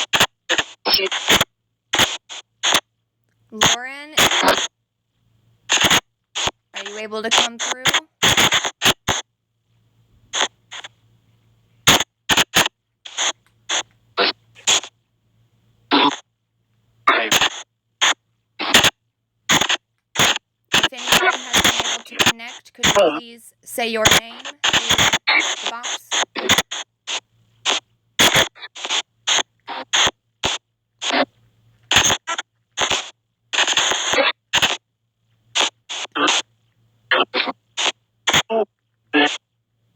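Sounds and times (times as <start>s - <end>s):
bursts of hissy white noise: 19.5s - 30.1s
faint low hum: 20.8s - 26.2s.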